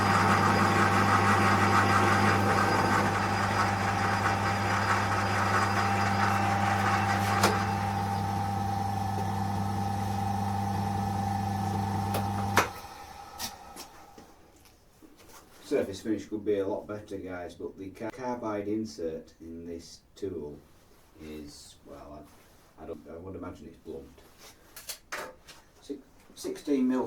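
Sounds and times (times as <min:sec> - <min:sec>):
lathe motor hum: 0:00.0 - 0:14.2.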